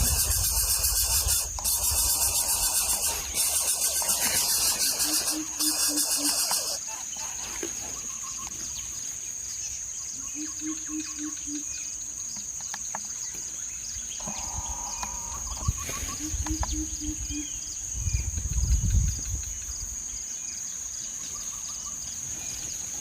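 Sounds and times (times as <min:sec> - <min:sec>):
low hoots: 0:00.0 - 0:07.3
high-pitched insect drone: 0:00.0 - 0:08.6, 0:09.6 - 0:13.2, 0:13.9 - 0:23.0
birds chirping: 0:00.0 - 0:23.0.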